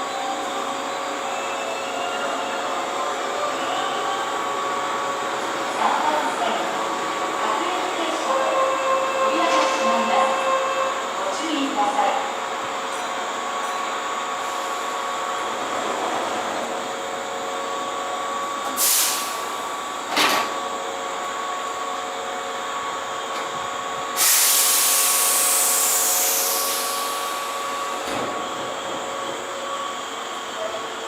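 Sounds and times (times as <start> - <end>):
electric train equipment hum: 0.0 - 31.0
compressed air hissing out: 18.7 - 19.5, 24.2 - 27.9.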